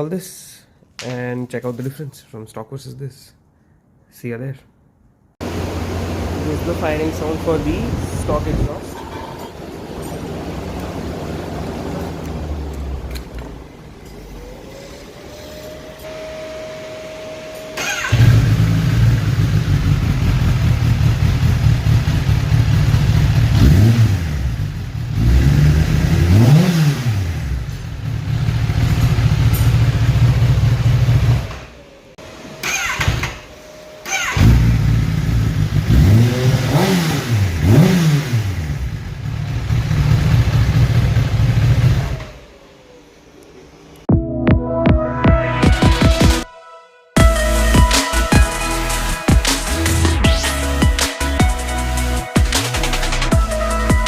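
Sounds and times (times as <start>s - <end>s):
motorcycle engine idling and revving: 5.4s - 44.1s.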